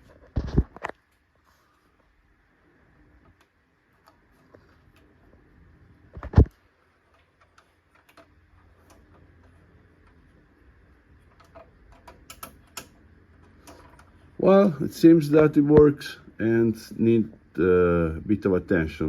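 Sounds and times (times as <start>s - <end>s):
faint low hum: 0.0s - 19.0s
knobs and rotary switches clicking: 7.1s - 10.4s, 11.1s - 14.7s.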